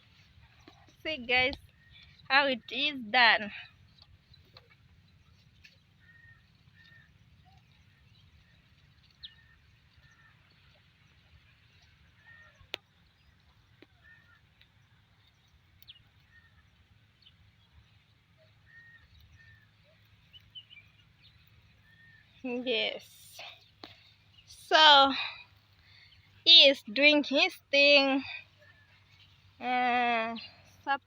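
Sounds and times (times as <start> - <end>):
bird calling faintly: 0.0 - 17.4.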